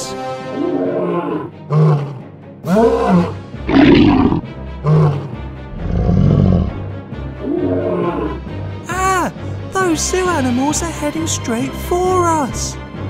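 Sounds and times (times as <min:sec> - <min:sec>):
background music: 0:00.0 - 0:13.0
lion-like animal roars: 0:00.6 - 0:08.4.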